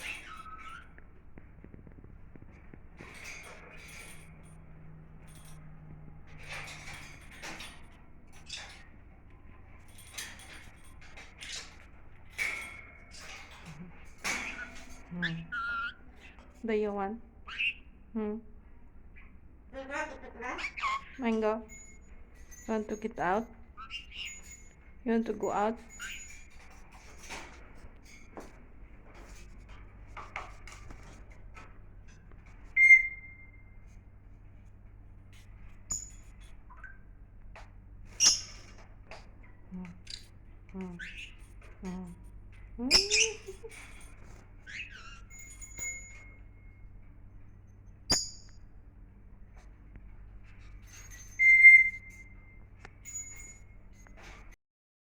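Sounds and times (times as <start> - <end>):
bird whistling: 32.8 - 33.6, 51.4 - 52.1.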